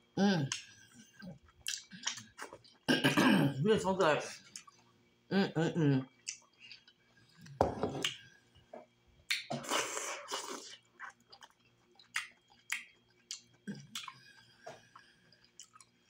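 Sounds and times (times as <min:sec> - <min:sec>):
wet chewing and lip-smacking: 0:00.5 - 0:02.9, 0:09.3 - 0:16.0.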